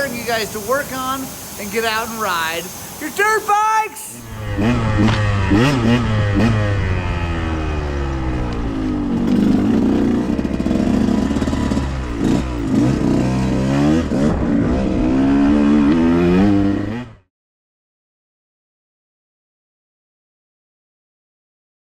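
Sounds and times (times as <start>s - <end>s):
dirt bike engine revving: 4.1s - 17.3s.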